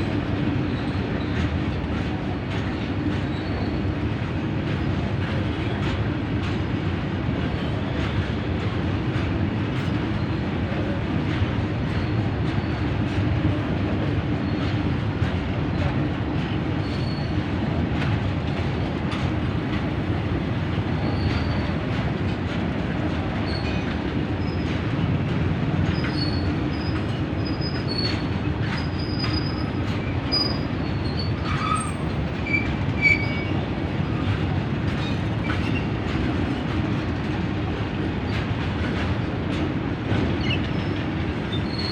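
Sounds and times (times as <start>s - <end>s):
rail clicks: 0.0s - 41.9s
train rumbling on rails: 0.0s - 41.9s
high-pitched wheel squeals: 30.3s - 33.5s.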